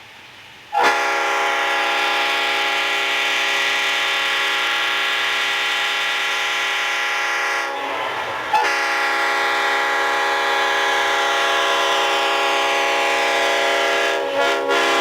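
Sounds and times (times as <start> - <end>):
locomotive air horn blast: 0.7 - 15.0.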